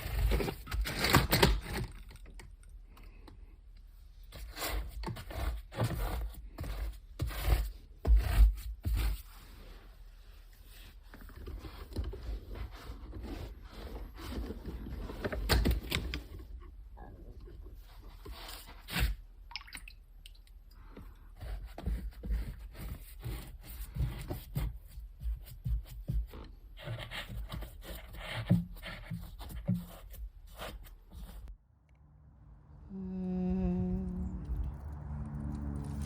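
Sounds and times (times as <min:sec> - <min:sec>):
low humming tone: 0:31.6 - 0:36.0
small objects crackling and scraping: 0:34.3 - 0:36.0.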